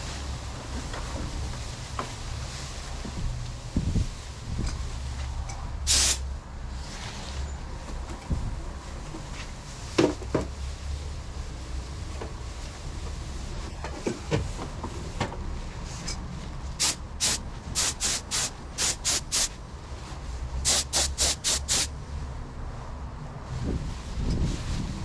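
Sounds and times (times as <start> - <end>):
paint spray gun hissing: 5.9 - 6.2, 16.8 - 19.5, 20.7 - 21.9.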